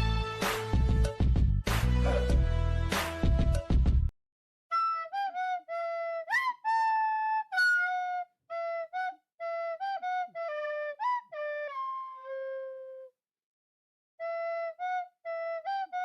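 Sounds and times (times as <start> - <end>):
flute-like woodwind melody: 4.7 - 13.1, 14.2 - 16.0.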